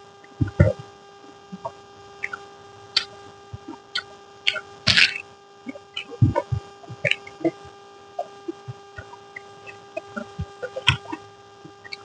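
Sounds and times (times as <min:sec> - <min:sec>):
faint steady hum: 0:00.0 - 0:12.0
mouth clicks and smacks: 0:01.5 - 0:02.4, 0:03.0 - 0:12.0
chewing or slurping: 0:03.0 - 0:07.6.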